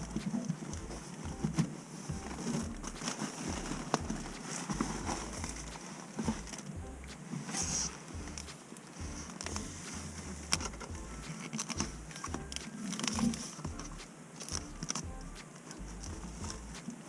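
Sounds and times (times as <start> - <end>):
dull bumps: 0.0 - 12.6, 16.0 - 16.8
air filter rustling and scraping: 0.0 - 15.0.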